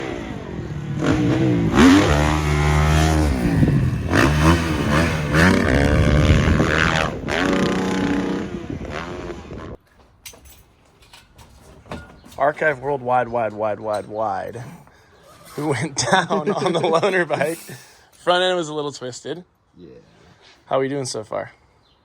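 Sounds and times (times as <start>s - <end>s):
dirt bike engines revving: 0.0s - 9.8s.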